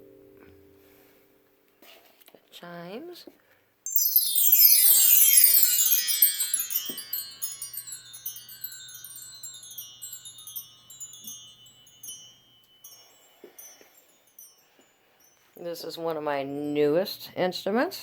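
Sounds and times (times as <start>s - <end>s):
wind chimes ringing: 3.9s - 17.0s
light tinkles of chimes: 3.9s - 17.2s.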